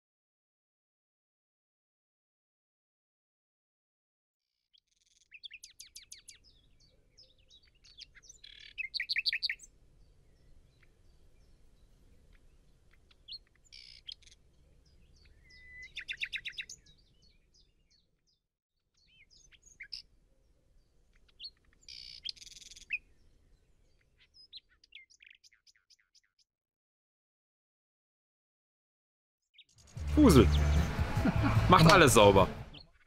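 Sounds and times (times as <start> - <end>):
birds chirping and trilling: 4.8 - 26.4, 29.5 - 33.0.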